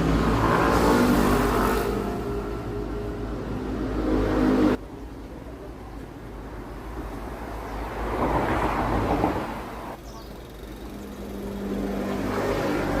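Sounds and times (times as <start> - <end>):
motorbike engine: 10.0 - 13.0.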